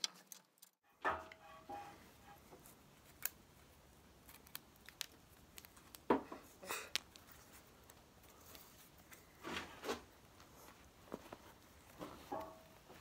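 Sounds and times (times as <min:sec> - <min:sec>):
rustling scrapes: 0:07.2 - 0:13.0.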